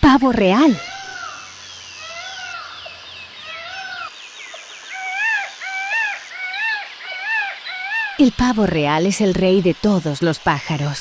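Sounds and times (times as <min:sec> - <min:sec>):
peacock honking calls: 0:00.7 - 0:04.2, 0:04.8 - 0:08.2.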